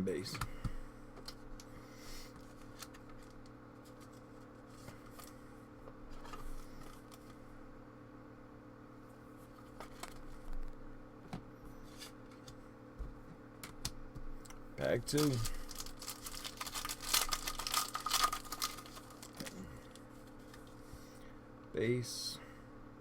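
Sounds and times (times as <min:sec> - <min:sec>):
cards and foil wrapper rustling: 0:02.4 - 0:05.4, 0:09.5 - 0:10.4, 0:15.0 - 0:20.7.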